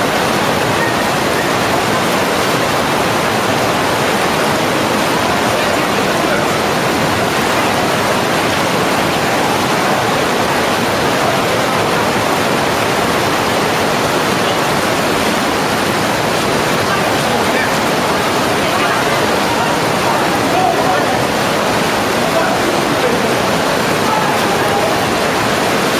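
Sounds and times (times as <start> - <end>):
waterfall roaring: 0.0 - 25.9.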